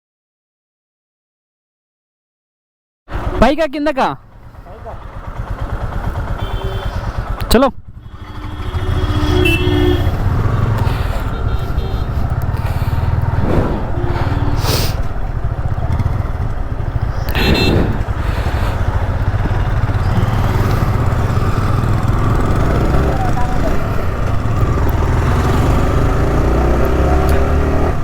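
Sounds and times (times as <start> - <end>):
motorcycle engine: 3.1 - 3.4, 4.2 - 28.0
road noise: 3.1 - 28.0
brief tonal sounds: 13.4 - 15.0.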